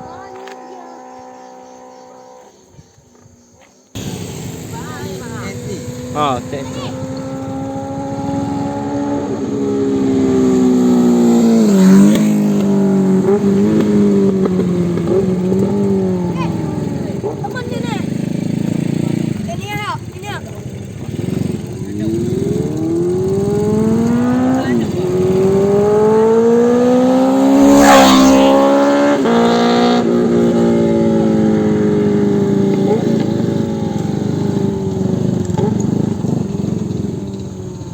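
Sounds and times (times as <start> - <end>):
motorcycle engine passing by: 4.0 - 37.9.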